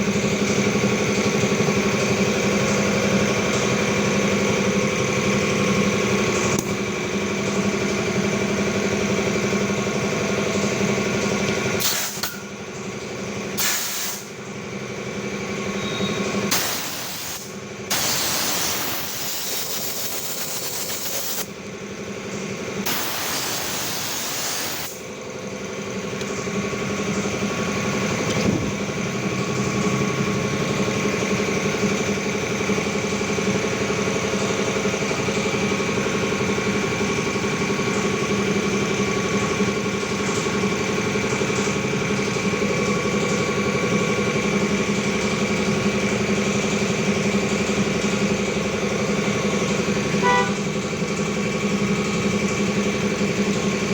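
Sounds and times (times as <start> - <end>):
compressed air hissing: 13.6 - 14.3, 16.5 - 21.5, 22.8 - 25.0.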